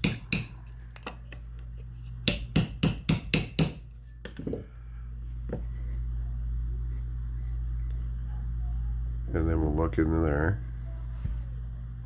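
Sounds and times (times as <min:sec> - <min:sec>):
small hammer tapping metal: 0:00.0 - 0:01.2, 0:02.2 - 0:04.4.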